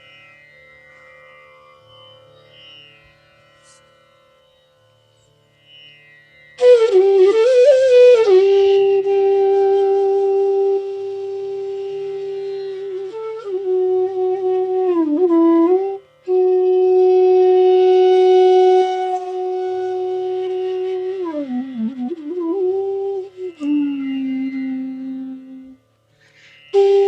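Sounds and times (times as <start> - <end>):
bamboo flute melody: 6.6 - 25.8, 26.6 - 27.0.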